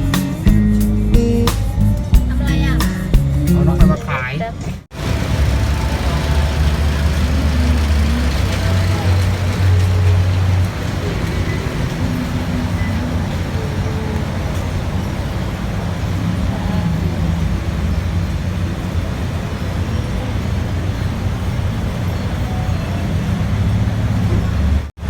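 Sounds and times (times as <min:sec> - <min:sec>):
vehicle engine and road noise: 0:00.0 - 0:25.0.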